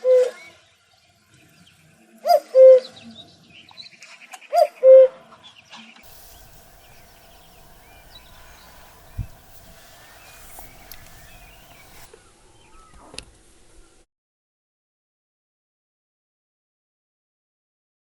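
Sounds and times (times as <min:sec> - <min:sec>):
faint small birds chirping: 0:06.0 - 0:14.0.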